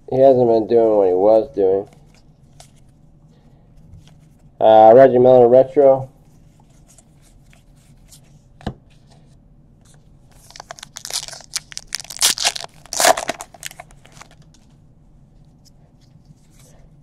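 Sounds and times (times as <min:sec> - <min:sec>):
wrapper tearing and crinkling: 0:10.4 - 0:14.4.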